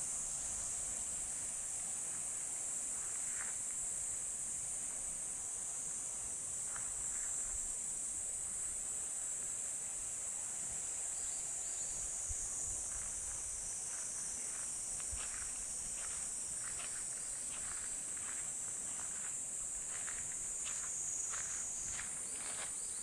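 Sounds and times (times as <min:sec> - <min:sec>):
high-pitched insect chorus: 0:10.8 - 0:23.0.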